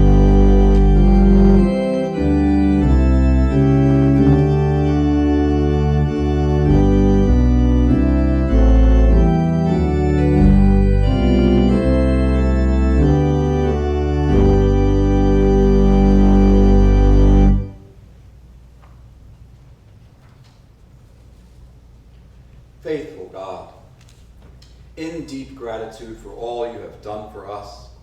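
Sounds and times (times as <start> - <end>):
deep bass line: 0.0 - 17.8
organ playing held chords: 0.0 - 18.0.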